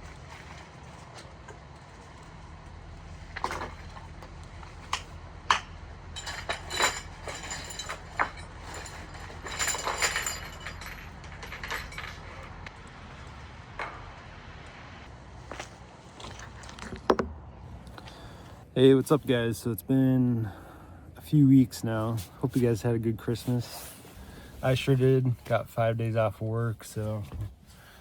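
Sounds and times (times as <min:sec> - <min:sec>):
metal parts clinking: 0:03.4 - 0:14.0.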